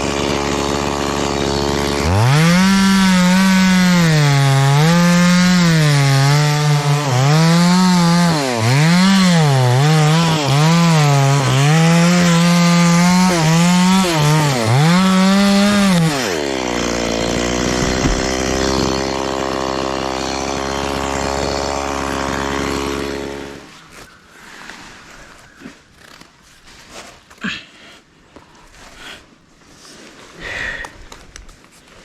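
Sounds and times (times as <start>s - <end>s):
chainsaw cutting wood: 0.0s - 23.8s.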